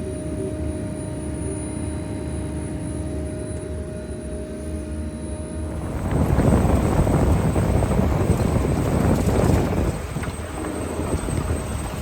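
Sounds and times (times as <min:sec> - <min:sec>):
potato harvester running: 0:05.7 - 0:12.0
potatoes and soil rattling: 0:05.8 - 0:12.0.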